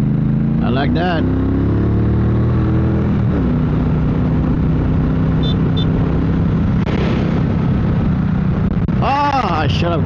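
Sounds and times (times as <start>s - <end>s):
motorcycle engine cruising: 0.0s - 10.0s
wind rush: 3.0s - 10.0s
short high beeps: 5.4s - 6.0s.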